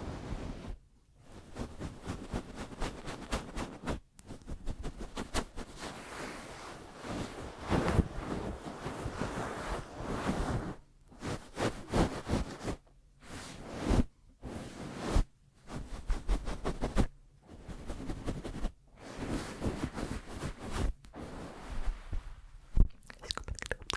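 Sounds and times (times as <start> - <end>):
palms rubbing and swishing: 0.0 - 22.6.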